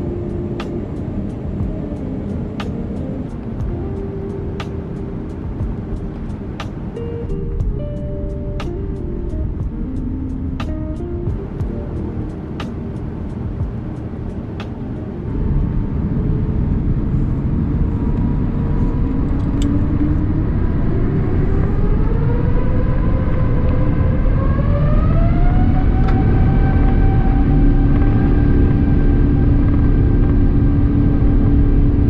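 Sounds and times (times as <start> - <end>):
jet engines spooling up: 0.0 - 32.0.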